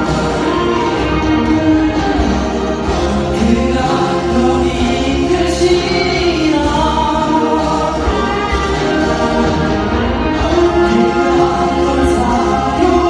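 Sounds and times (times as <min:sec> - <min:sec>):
instrumental accompaniment with bass: 0:00.0 - 0:13.0
man singing a slow ballad: 0:02.0 - 0:08.8.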